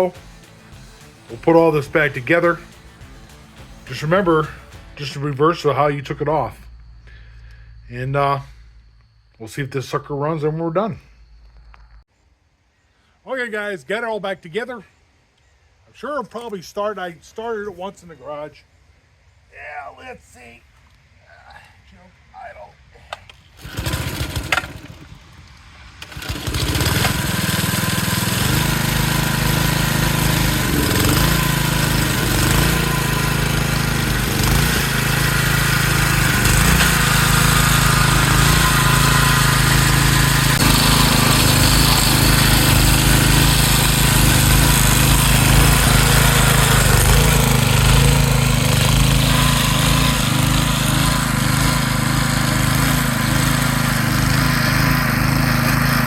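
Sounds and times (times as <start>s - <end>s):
small engine starting and running: 0.0s - 9.4s, 23.5s - 56.0s.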